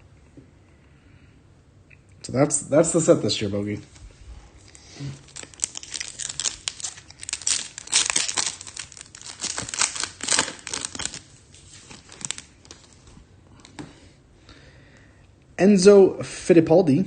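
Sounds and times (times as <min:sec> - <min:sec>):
foil wrapper tearing and crinkling: 0:04.7 - 0:13.1.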